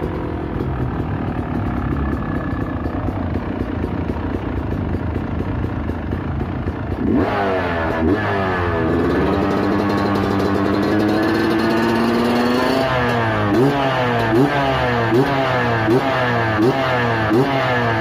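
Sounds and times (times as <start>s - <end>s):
dirt bike engine revving: 6.9s - 18.0s.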